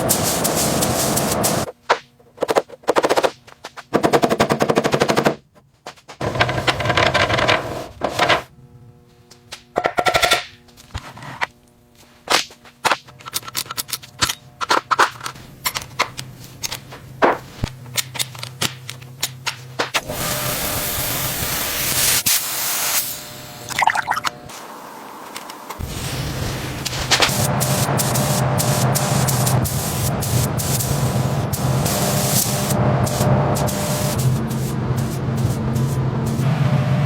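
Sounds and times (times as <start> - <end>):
steady low hum: 0.0 - 20.6, 25.8 - 37.0.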